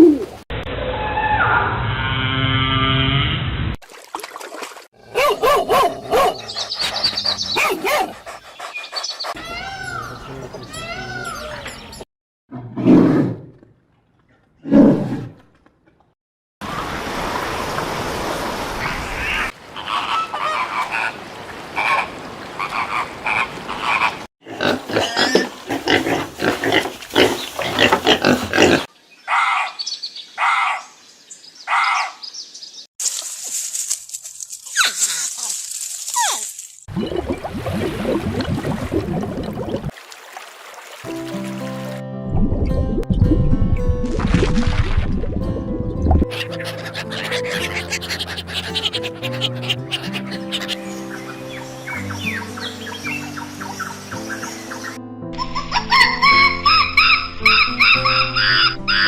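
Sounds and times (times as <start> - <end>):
animal calls: 19.2 - 21.2, 46.3 - 51.0, 55.4 - 59.0.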